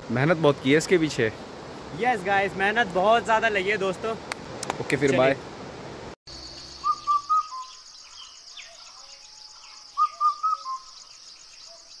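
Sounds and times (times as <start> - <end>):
insects trilling: 6.3 - 12.0
bird whistling: 6.6 - 12.0.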